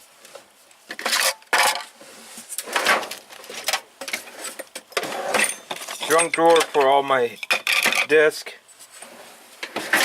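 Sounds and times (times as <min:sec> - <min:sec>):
metal tools clinking and rattling: 0:03.5 - 0:08.2.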